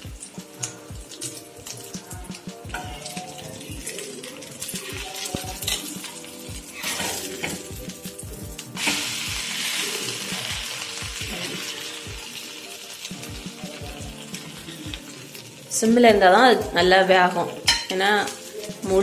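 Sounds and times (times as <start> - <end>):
omelette sizzling in oil: 0.0 - 16.4
background music with steady beat: 0.0 - 19.0
metal spatula scraping: 3.9 - 7.8.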